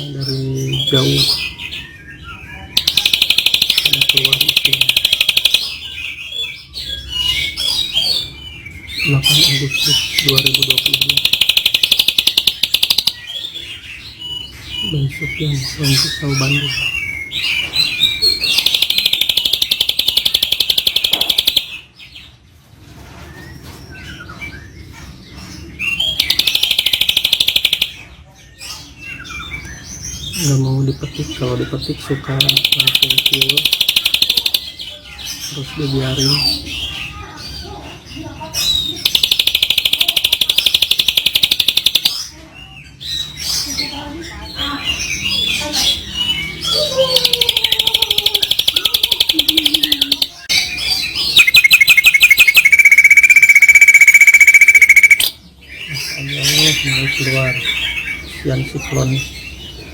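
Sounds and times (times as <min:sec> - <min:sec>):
soft bird chirps: 0:02.2 - 0:05.8, 0:25.7 - 0:28.1, 0:30.4 - 0:36.6, 0:46.0 - 0:59.2
songbird trilling: 0:02.8 - 0:05.8, 0:09.0 - 0:13.4, 0:18.4 - 0:21.8, 0:26.1 - 0:28.0, 0:32.0 - 0:34.7, 0:39.0 - 0:42.3, 0:46.7 - 0:58.0
bird chirps and whistles: 0:47.2 - 0:55.4.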